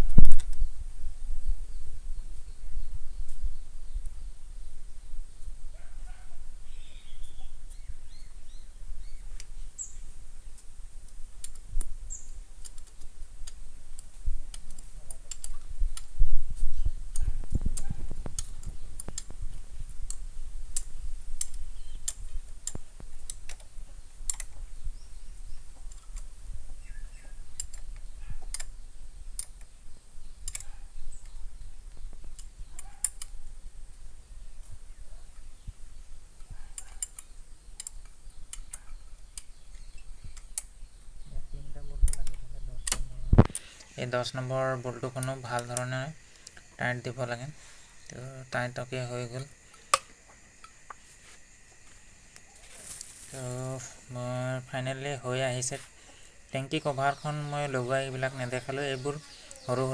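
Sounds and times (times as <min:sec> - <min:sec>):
bird chirps: 0:04.9 - 0:10.2, 0:12.0 - 0:12.4, 0:20.9 - 0:22.5, 0:23.9 - 0:29.1, 0:52.4 - 0:59.9.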